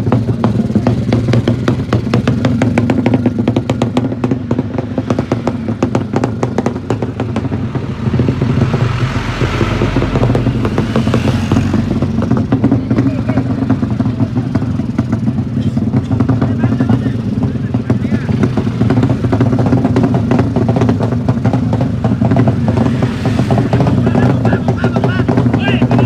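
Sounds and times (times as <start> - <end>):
motorcycle engine crackling: 0.0 - 26.0
rushing noise: 5.0 - 14.1, 18.3 - 26.0.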